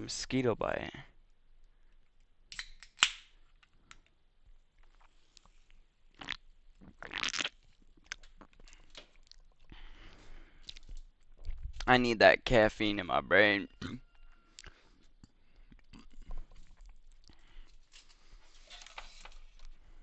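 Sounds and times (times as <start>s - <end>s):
person slurping and swallowing: 6.1s - 10.0s, 14.6s - 17.6s.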